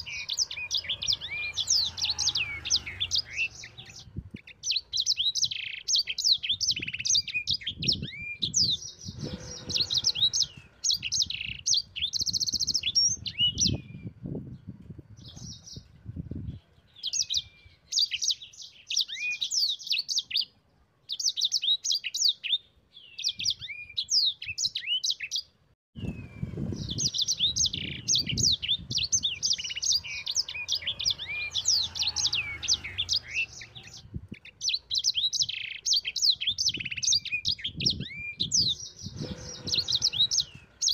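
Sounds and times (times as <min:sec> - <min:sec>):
songbird chirps and trills: 0:00.0 - 0:40.9
low rumbling noise: 0:08.8 - 0:11.0.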